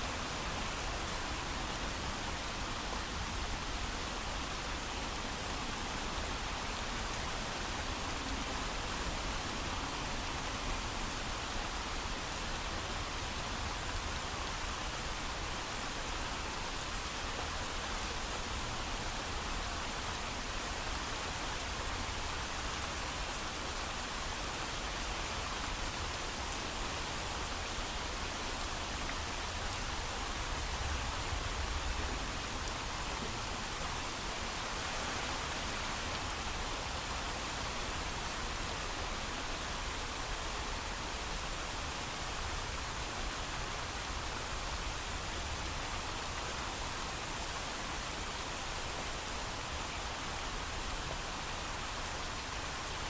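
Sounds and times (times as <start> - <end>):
heavy rain: 0.0 - 53.0.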